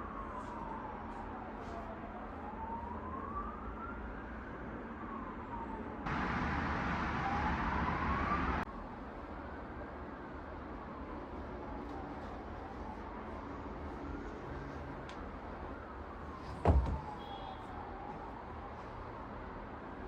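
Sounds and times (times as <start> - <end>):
distant siren wailing: 0.0 - 8.7, 9.4 - 20.0
loud rush of noise: 6.1 - 8.7.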